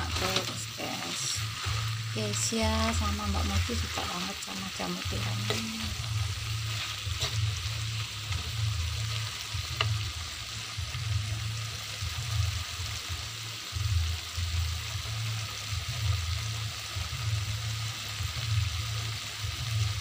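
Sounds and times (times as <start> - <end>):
metal spatula scraping pan: 0.0 - 9.2
low rumble: 0.0 - 12.5
food sizzling in a wok: 0.0 - 20.0.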